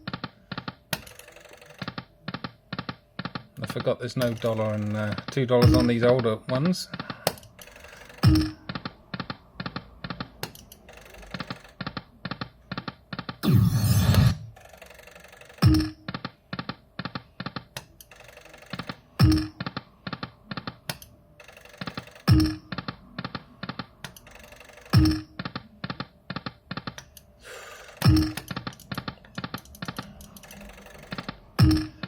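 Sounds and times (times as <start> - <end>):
slot machine reels clicking: 0.9 - 2.0, 4.1 - 6.2, 7.4 - 9.1, 10.1 - 12.0, 13.4 - 16.3, 17.8 - 19.8, 20.5 - 26.0, 26.8 - 32.0
slot machine thump: 4.2 - 6.2, 8.2 - 8.8, 13.4 - 14.4, 15.6 - 16.2, 19.2 - 19.8, 22.3 - 22.9, 25.0 - 25.6, 28.0 - 28.8, 31.6 - 32.0
slot machine tone: 28.1 - 28.4.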